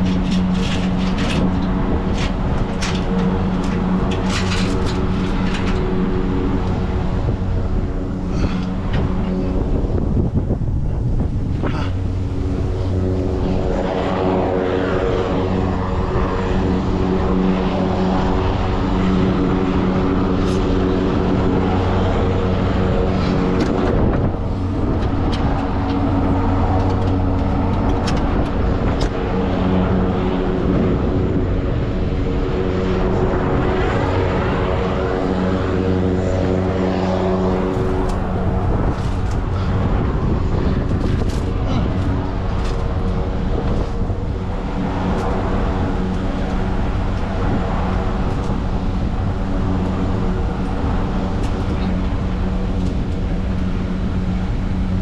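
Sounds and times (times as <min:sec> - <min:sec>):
diesel truck engine droning: 0:00.0 - 0:55.0.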